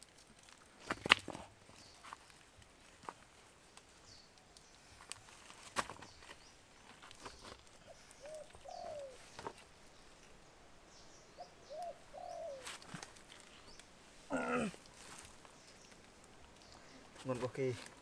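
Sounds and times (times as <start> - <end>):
faint high bird chirps: 7.2 - 9.4, 11.0 - 12.7
bird calling low notes: 11.4 - 12.7.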